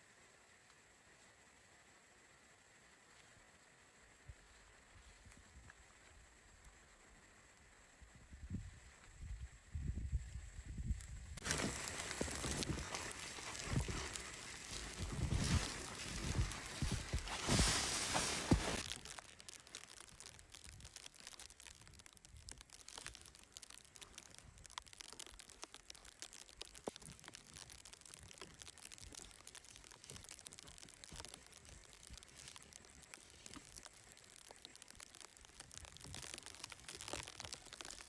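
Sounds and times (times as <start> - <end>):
crinkling handling noises: 11.4 - 38.0.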